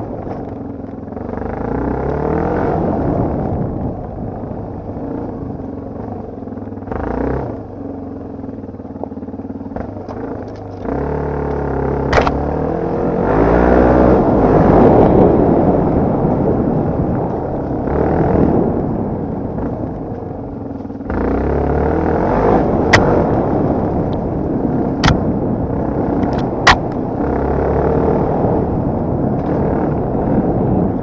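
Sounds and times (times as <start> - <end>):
dirt bike engine revving: 6.9 - 7.7, 9.7 - 19.9, 21.0 - 30.8.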